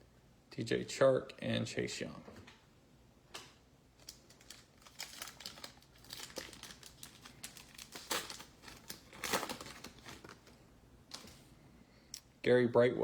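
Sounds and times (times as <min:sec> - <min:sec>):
card pack wrapper crinkling: 0:04.0 - 0:11.5.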